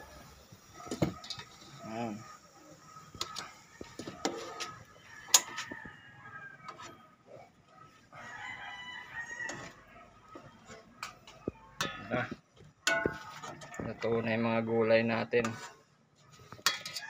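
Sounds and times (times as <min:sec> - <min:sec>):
rooster crowing: 0:03.4 - 0:07.4, 0:08.1 - 0:10.2
metal ladle clinking on pot: 0:11.0 - 0:13.8, 0:16.6 - 0:17.0.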